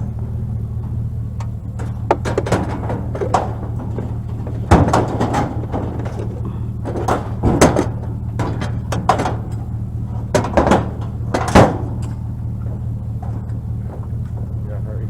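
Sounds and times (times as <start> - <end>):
low engine hum: 0.0 - 15.0
scrap metal clanking: 0.0 - 15.0.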